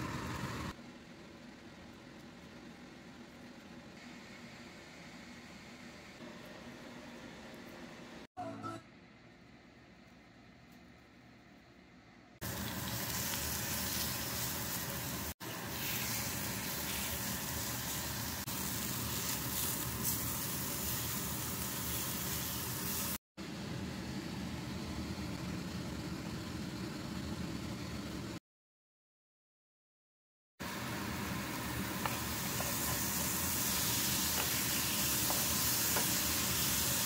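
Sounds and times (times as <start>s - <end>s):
chicken sizzling in a skillet: 12.4s - 23.2s, 30.6s - 37.0s.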